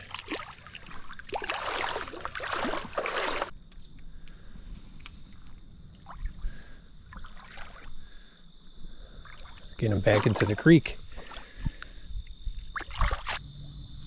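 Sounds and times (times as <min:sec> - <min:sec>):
creek water splashing: 0:00.0 - 0:03.5, 0:06.0 - 0:08.1, 0:09.1 - 0:12.0, 0:12.7 - 0:13.4
high-pitched insect drone: 0:02.6 - 0:14.0.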